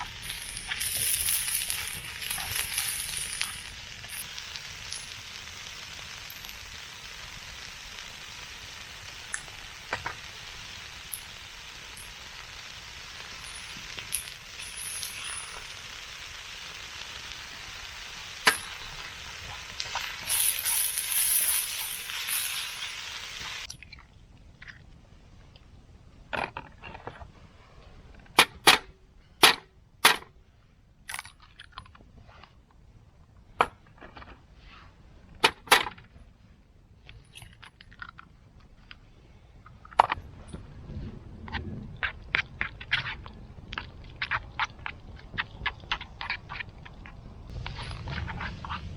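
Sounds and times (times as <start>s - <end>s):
food sizzling in a pan: 0.0s - 23.7s.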